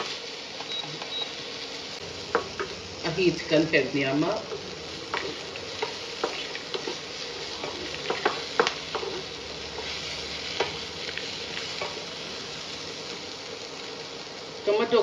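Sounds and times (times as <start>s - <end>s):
potatoes sizzling in a pan: 0.0s - 15.0s
spatula scraping a pan: 4.5s - 12.0s.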